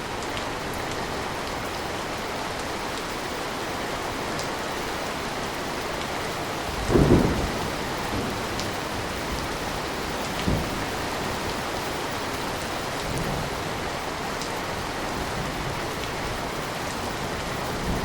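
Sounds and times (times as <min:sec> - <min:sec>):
rain falling: 0:00.0 - 0:18.0
thunder rumbling: 0:06.7 - 0:11.5.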